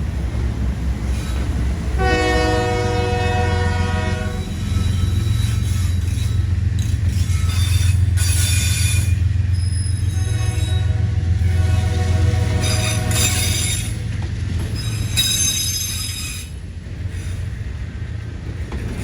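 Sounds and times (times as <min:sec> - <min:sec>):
train rumble: 0:00.0 - 0:19.0
train wheel squeal: 0:01.0 - 0:01.6, 0:04.3 - 0:17.6
locomotive air horn: 0:02.0 - 0:04.5, 0:10.0 - 0:13.9.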